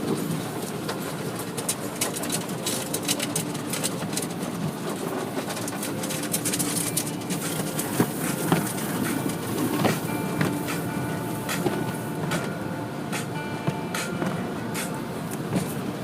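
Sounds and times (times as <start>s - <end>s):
car wash rushing noise: 0.0s - 16.0s
faint machine hum: 0.0s - 16.0s
knocks and clicks: 5.4s - 15.8s.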